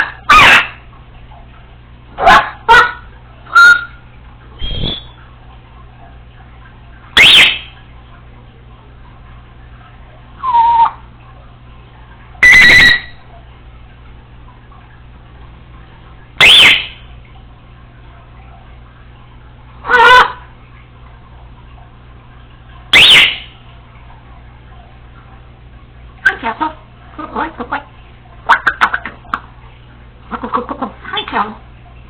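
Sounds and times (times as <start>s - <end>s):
parrot whistles and squawks: 0.0s - 0.8s, 2.2s - 4.0s, 4.6s - 5.2s, 7.2s - 7.8s, 10.4s - 11.0s, 12.4s - 13.2s, 16.4s - 17.0s, 19.8s - 20.4s, 22.9s - 23.6s.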